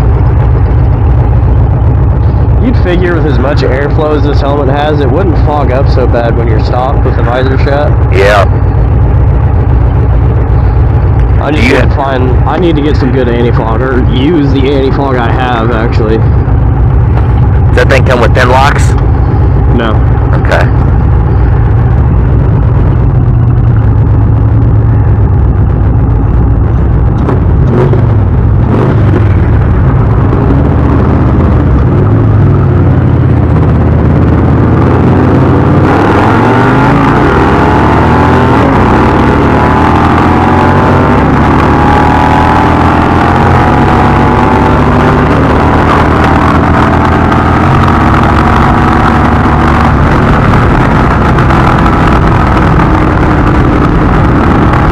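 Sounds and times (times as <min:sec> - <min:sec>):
motorcycle engine accelerating: 0:00.0 - 0:54.9
wind rushing over microphone: 0:16.0 - 0:54.9.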